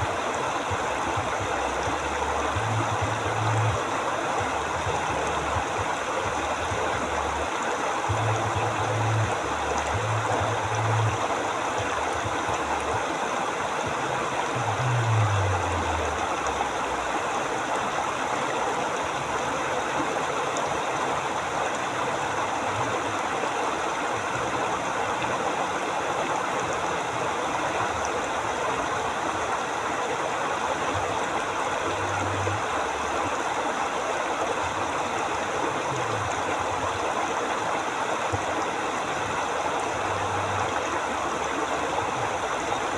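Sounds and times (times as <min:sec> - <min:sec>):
river flowing over rocks: 0:00.0 - 0:42.9
low rumbles: 0:13.9 - 0:17.2.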